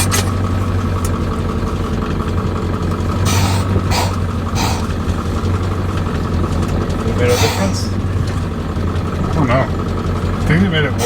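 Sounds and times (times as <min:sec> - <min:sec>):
diesel engine idling: 0:00.0 - 0:11.0
short hisses: 0:03.2 - 0:05.0, 0:07.3 - 0:08.0.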